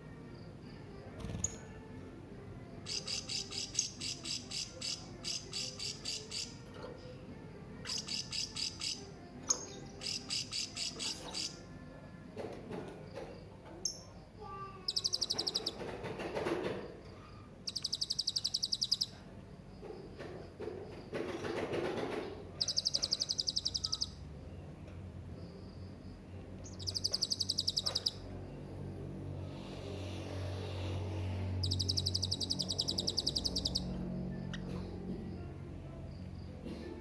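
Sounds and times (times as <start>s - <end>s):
parrot high-pitched trilling: 2.9s - 6.6s, 7.8s - 11.6s, 22.6s - 24.2s, 26.6s - 28.2s, 31.6s - 34.6s.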